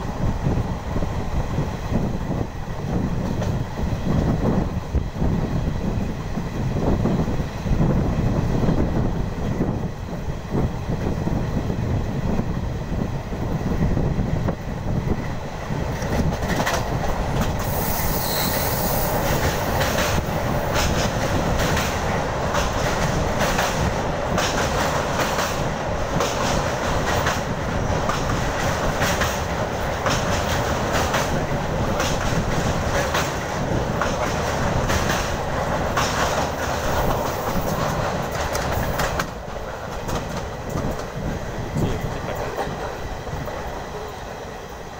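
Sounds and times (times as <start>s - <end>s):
train coaches rumbling: 0.0s - 44.9s.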